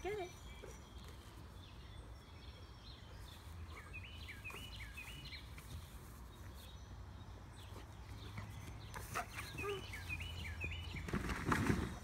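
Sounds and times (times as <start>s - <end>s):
small bird chirping: 0.0s - 11.2s.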